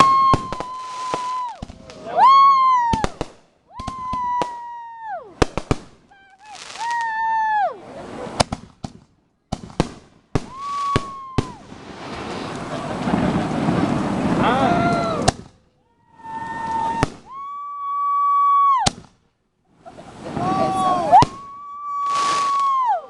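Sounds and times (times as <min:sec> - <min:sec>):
fireworks bangs and crackling: 0:00.0 - 0:17.5, 0:18.8 - 0:23.0
whistling fireworks: 0:00.0 - 0:19.2, 0:19.8 - 0:23.0.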